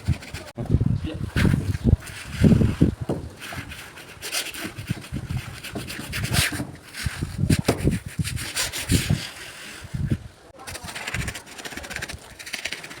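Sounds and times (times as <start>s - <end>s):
rubbing and scraping: 0.0s - 13.0s
dull low knocks: 2.9s - 3.4s.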